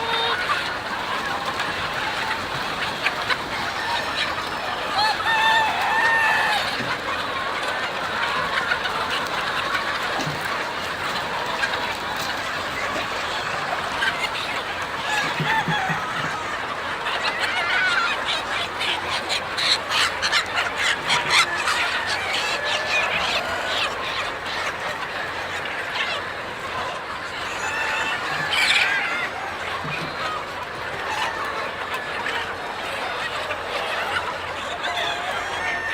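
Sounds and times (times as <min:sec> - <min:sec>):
chickens clucking: 0:00.0 - 0:35.9.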